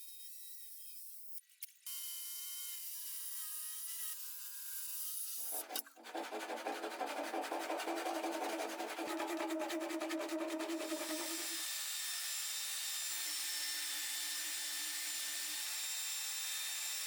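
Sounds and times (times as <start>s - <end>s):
tool rasping into wood: 5.5s - 11.6s
power tool whining: 7.7s - 11.6s.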